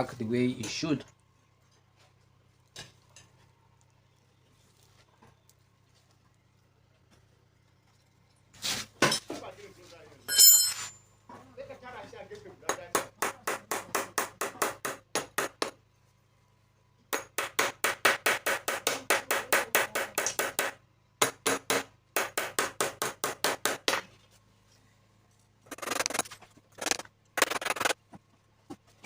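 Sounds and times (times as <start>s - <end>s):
scraping tool noise: 10.3s - 11.0s, 25.6s - 28.0s.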